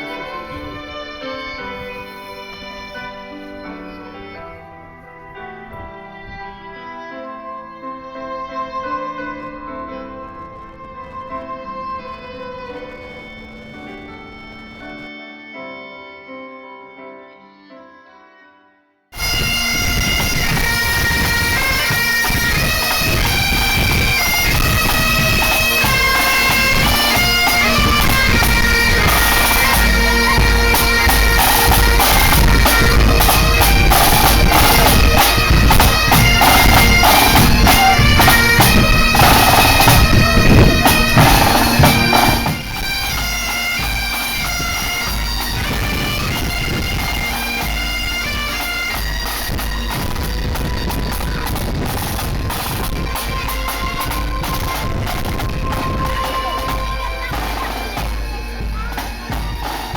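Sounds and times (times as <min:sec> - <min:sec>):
bagpipes playing a tune: 0:00.0 - 0:04.4, 0:19.2 - 0:59.9
drums beating: 0:19.2 - 0:59.9.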